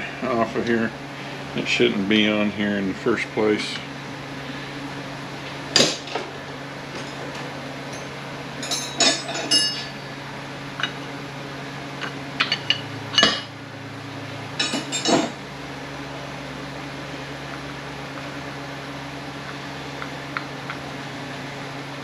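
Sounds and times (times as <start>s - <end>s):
steady low hum: 0.0s - 22.0s
metal tools clinking and knocking: 7.9s - 10.0s, 12.0s - 13.5s, 14.6s - 15.3s.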